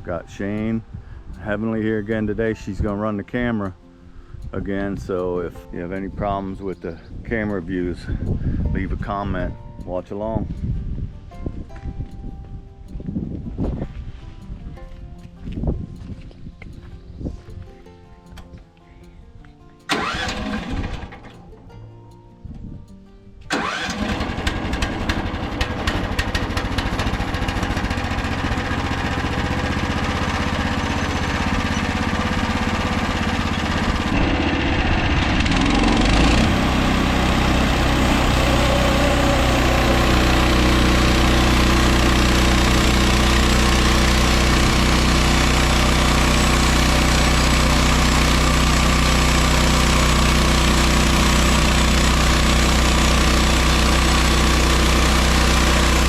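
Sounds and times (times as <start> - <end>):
gasoline engine running: 19.9 - 21.7, 23.5 - 56.0.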